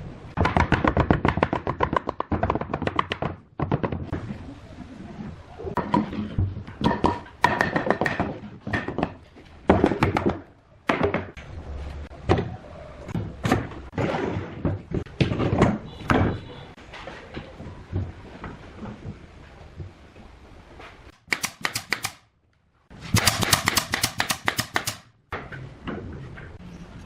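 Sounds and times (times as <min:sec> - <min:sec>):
wooden knocks and thunks: 0:00.4 - 0:04.4, 0:05.8 - 0:11.4, 0:12.2 - 0:20.1.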